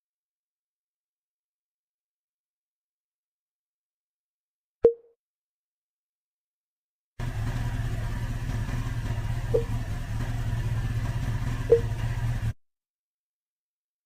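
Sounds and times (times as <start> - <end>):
short high engine blips: 7.2 - 12.6
vehicle engine humming: 7.2 - 12.6.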